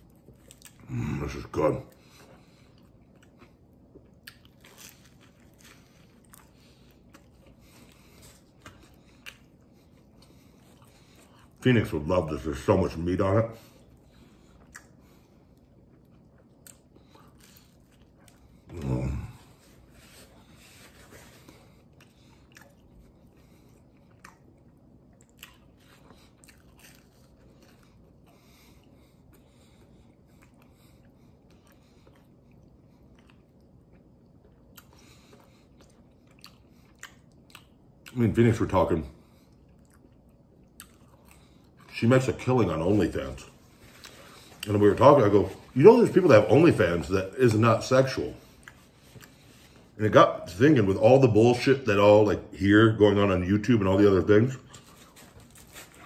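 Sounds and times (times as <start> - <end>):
chewing and biting pizza crust: 0.0 - 50.0, 53.9 - 56.0
soft crunches: 42.8 - 46.3, 54.6 - 56.0.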